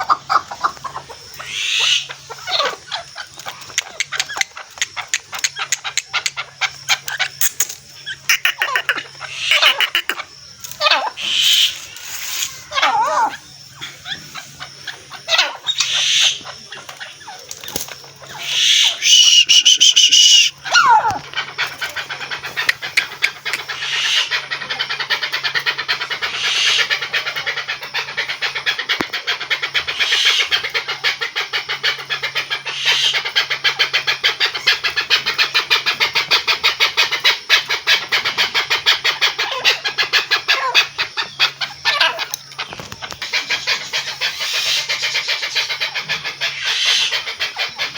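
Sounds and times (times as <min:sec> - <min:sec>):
partridge clucking: 0:03.5 - 0:11.7, 0:17.4 - 0:24.2.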